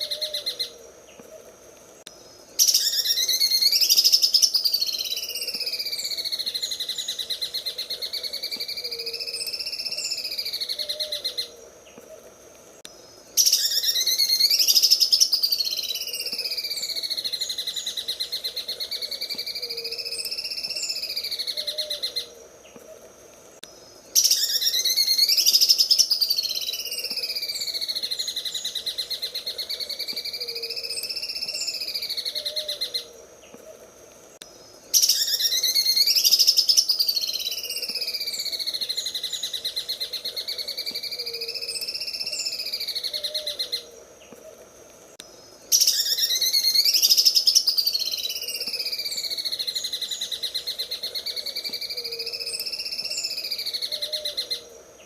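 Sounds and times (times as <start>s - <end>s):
bird rattling trill song: 2.6s - 11.4s, 13.4s - 22.3s, 24.1s - 32.7s, 34.9s - 43.8s, 45.7s - 50.8s.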